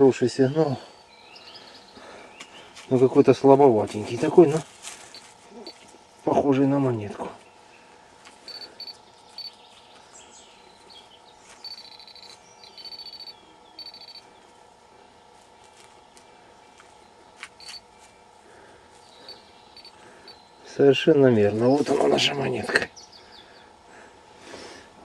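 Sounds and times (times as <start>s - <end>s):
metal detector beeping: 8.4s - 9.6s, 11.6s - 14.3s, 17.6s - 17.8s, 19.3s - 20.4s.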